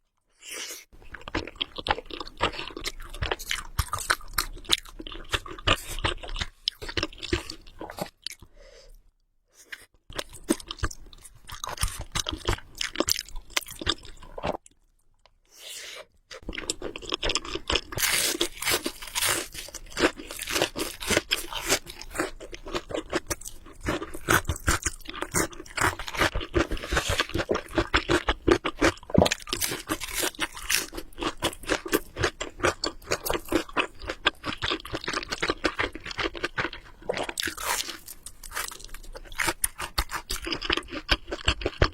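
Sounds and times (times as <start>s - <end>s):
chewing noodles: 16.3s - 41.9s.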